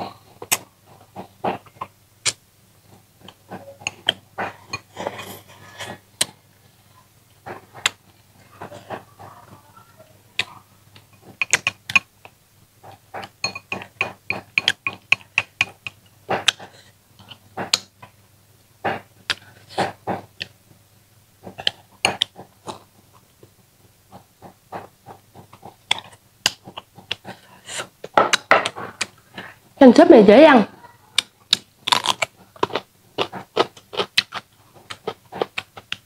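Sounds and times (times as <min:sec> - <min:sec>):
wet chewing and lip-smacking: 0:31.2 - 0:36.0.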